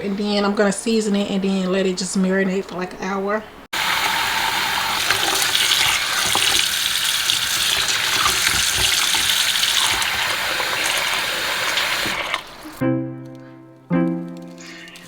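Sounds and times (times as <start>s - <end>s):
tap running into sink: 3.8s - 12.8s
music: 12.8s - 15.0s.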